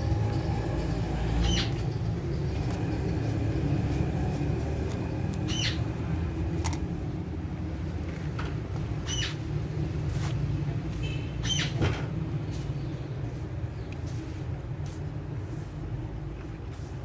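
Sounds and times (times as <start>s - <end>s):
parrot chirps: 1.4s - 1.8s, 5.4s - 5.8s, 9.0s - 9.4s, 11.4s - 11.8s.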